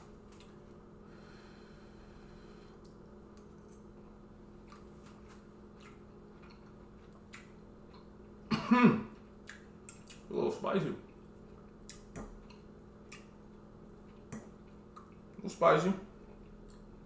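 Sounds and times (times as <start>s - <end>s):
person coughing: 8.5s - 9.2s.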